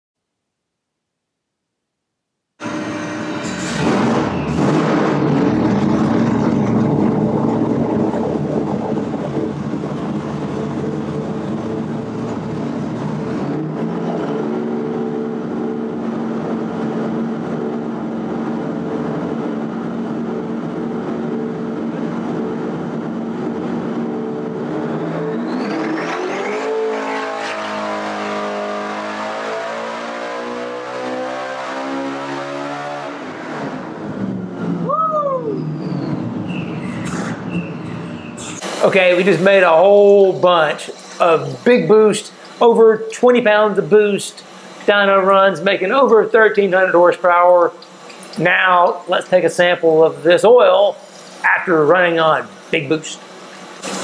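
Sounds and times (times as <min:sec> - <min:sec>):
supercharged engine revving: 0:02.6 - 0:34.9.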